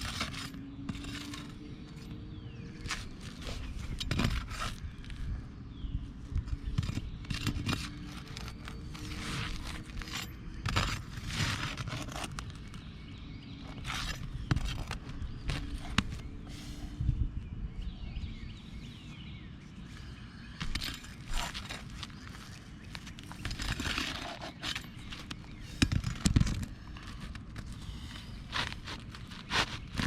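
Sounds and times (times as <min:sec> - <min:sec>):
shingles scraping and tearing: 0:00.0 - 0:02.1, 0:02.8 - 0:05.2, 0:06.7 - 0:12.8, 0:13.6 - 0:16.3, 0:20.6 - 0:30.0.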